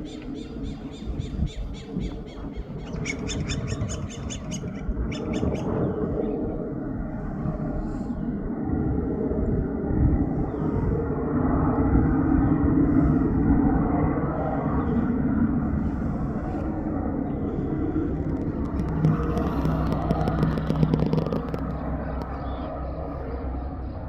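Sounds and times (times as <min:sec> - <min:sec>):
engine rumble: 0:00.0 - 0:24.0
steady low hum: 0:00.0 - 0:24.0.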